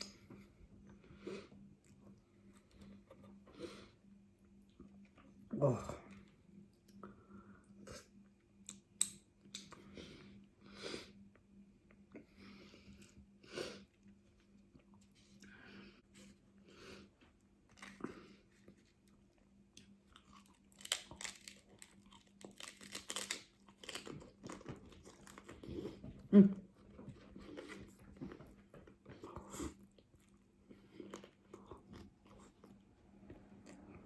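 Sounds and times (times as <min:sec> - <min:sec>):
faint steady hum: 0:00.0 - 0:34.0
taco shell crunching: 0:19.8 - 0:25.7.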